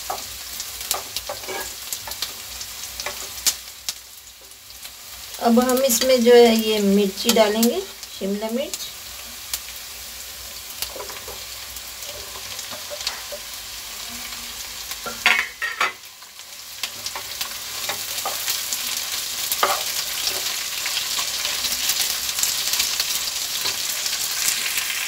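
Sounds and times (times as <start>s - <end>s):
wooden spatula scraping a pan: 0.0s - 3.5s, 10.8s - 14.4s, 16.8s - 21.7s
vegetables sizzling in hot oil: 0.0s - 25.0s.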